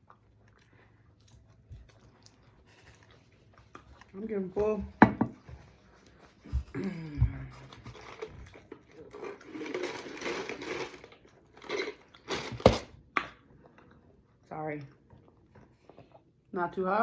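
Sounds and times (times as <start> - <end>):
person chewing crunchy food: 0.0 - 4.4, 5.7 - 14.4.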